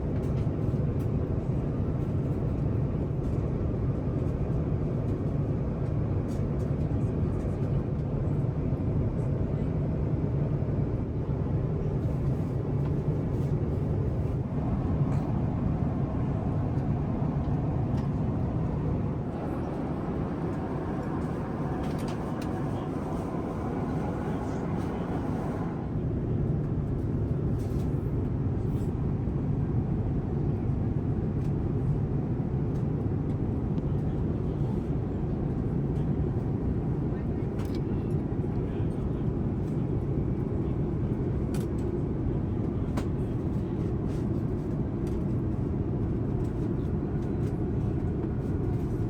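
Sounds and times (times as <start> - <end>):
airplane cabin drone: 11.9 - 49.0.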